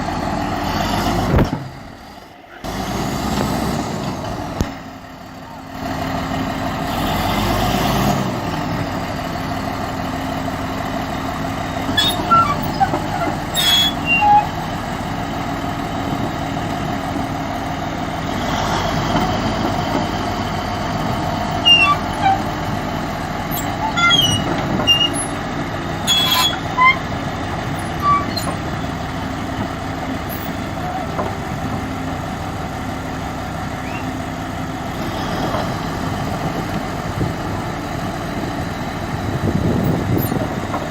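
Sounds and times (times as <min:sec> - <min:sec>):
heavy diesel engine running: 0:00.0 - 0:40.9
short high squeaks: 0:11.9 - 0:14.6, 0:21.6 - 0:22.5, 0:23.5 - 0:25.4, 0:26.0 - 0:27.1, 0:27.8 - 0:28.6, 0:33.8 - 0:34.2.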